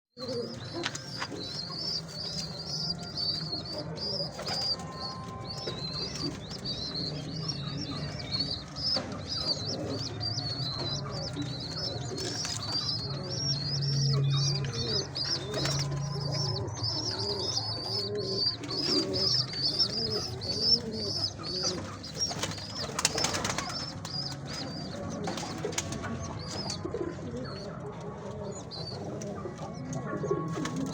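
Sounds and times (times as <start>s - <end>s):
pigeons cooing: 0.2s - 30.9s
rapid high-pitched chirping: 0.4s - 25.0s
wings fluttering: 15.0s - 26.2s.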